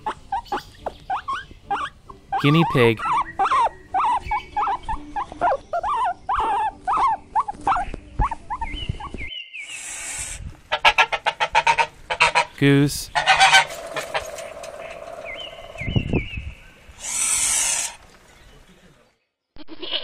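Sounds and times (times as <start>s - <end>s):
guinea pig squeaking: 0.0s - 9.3s
goose honking: 10.7s - 15.0s.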